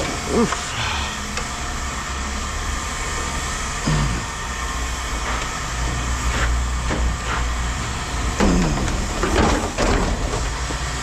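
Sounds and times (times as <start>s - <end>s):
diesel machinery drone: 0.0s - 11.0s.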